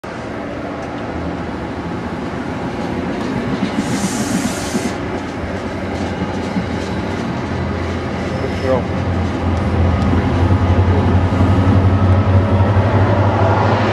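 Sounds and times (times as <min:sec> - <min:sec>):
passenger train rumbling: 0:00.0 - 0:13.9
train wheel clatter: 0:02.8 - 0:11.8
sharp hiss: 0:03.8 - 0:05.0.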